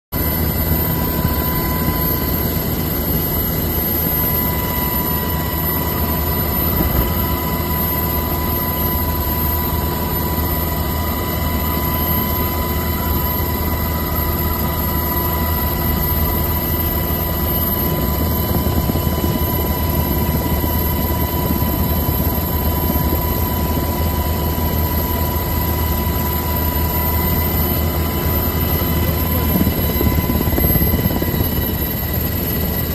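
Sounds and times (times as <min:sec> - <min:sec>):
helicopter running: 0:00.1 - 0:32.9.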